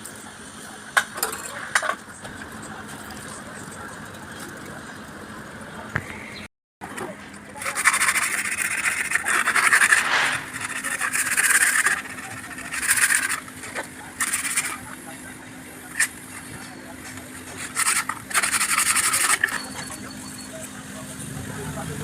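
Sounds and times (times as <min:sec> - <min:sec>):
hand scraping a hard surface: 0:07.6 - 0:14.9, 0:15.9 - 0:19.7.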